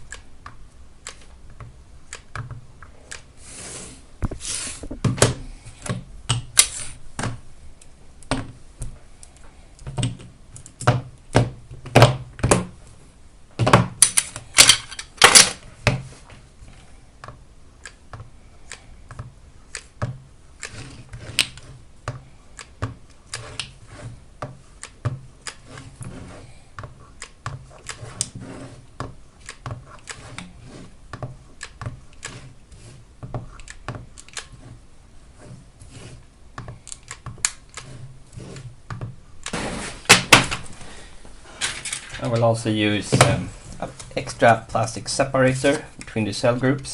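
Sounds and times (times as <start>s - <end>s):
battery cells clicking and knocking: 0.0s - 3.3s, 17.2s - 26.1s, 26.7s - 32.6s, 33.2s - 34.6s, 36.5s - 40.7s.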